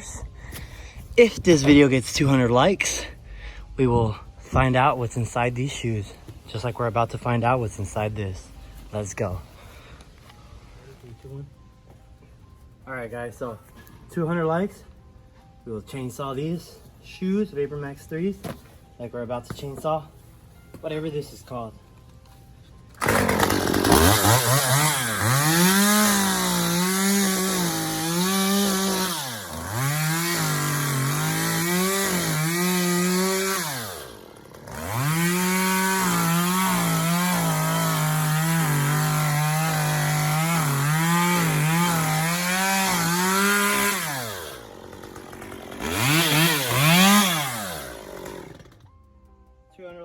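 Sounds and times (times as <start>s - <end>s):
chainsaw cutting: 23.0s - 48.9s.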